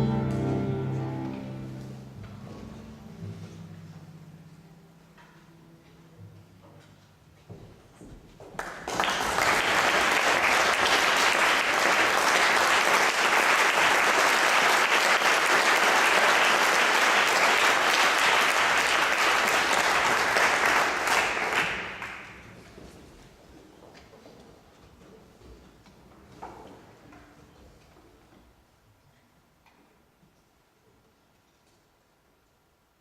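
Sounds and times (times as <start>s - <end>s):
audience applauding: 8.6s - 22.5s.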